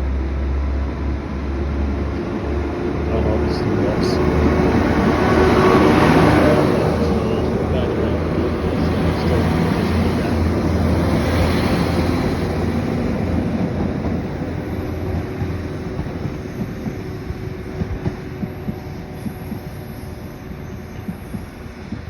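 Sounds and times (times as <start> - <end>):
diesel train engine hum: 0.0 - 22.0
train wheels clicking over rail joints: 6.2 - 20.0.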